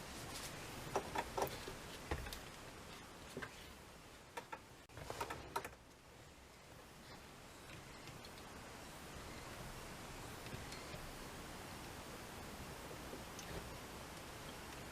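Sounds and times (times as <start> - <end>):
faint background hiss: 0.0 - 14.9
small clicks and taps: 4.4 - 6.0.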